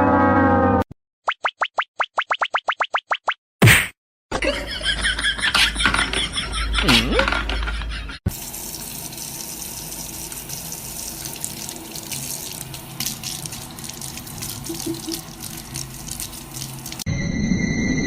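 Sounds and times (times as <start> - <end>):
running water: 8.3 - 17.1.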